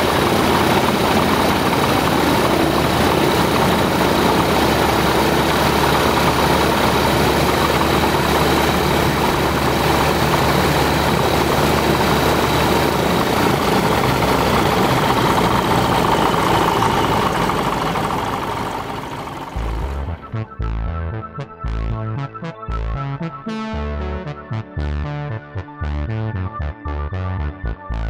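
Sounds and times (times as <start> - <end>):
aircraft engine idling: 0.0 - 20.4.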